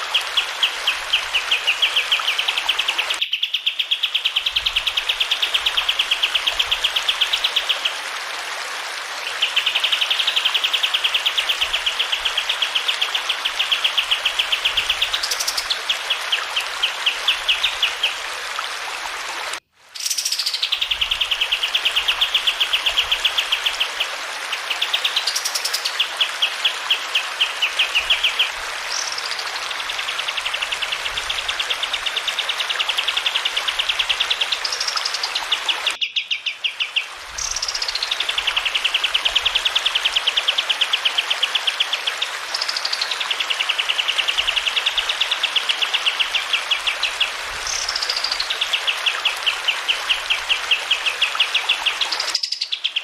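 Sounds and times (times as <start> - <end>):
flowing water hiss: 0.0 - 3.2, 3.8 - 53.0
songbird singing fast trills: 0.6 - 5.9, 34.6 - 39.0, 51.8 - 53.0.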